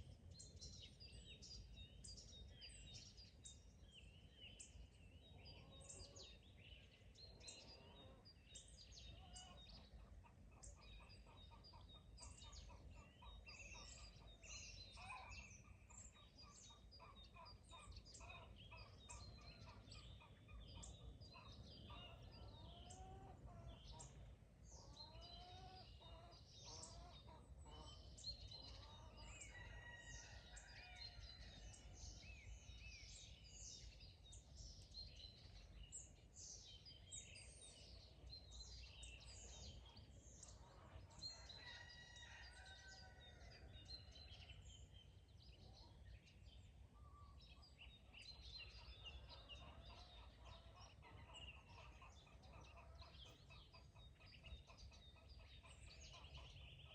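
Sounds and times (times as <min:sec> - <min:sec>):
songbirds chirping: 0:00.0 - 0:56.9
chickens calling: 0:15.7 - 0:32.0, 0:48.3 - 0:56.9.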